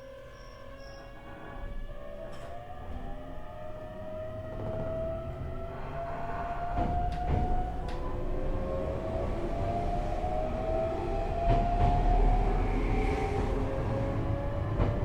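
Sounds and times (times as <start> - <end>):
train running gear rumble: 0.3 - 15.0
rail joint clacks: 4.4 - 8.8, 11.3 - 15.0.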